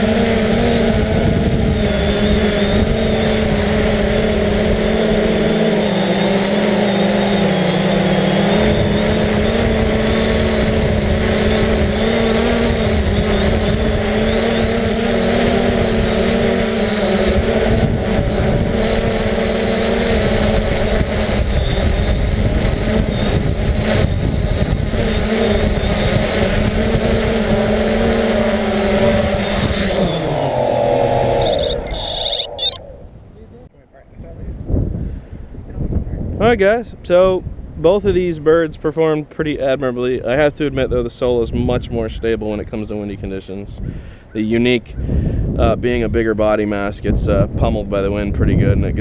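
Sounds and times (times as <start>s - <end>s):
drone propellers humming: 0.0s - 33.7s.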